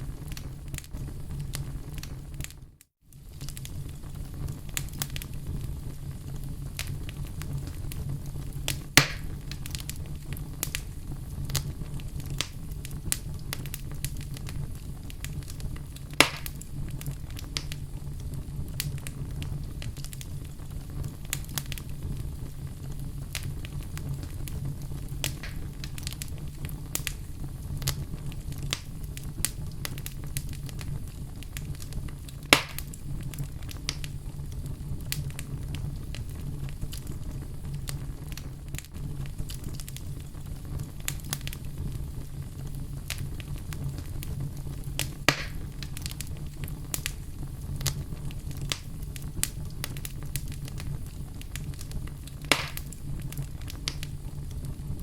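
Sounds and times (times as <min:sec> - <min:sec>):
fire crackling: 0:00.0 - 0:55.0
flames rumbling: 0:00.0 - 0:55.0
sharp wood pops: 0:09.0 - 0:09.3, 0:16.2 - 0:16.5, 0:25.4 - 0:25.6, 0:32.6 - 0:32.8, 0:45.3 - 0:45.6, 0:52.5 - 0:52.9.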